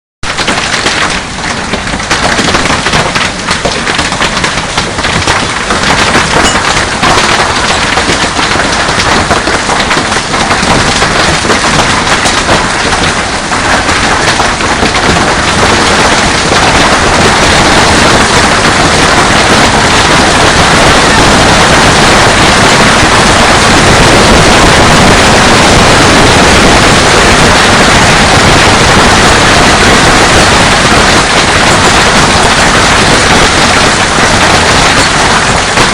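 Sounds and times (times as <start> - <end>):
hail pelting hard surfaces: 0.2 - 35.9
storm rushing: 10.6 - 35.9.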